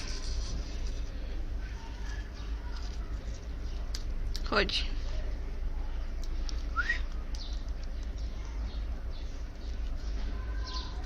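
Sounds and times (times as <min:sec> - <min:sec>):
small birds chirping and tweeting: 0:00.0 - 0:11.0.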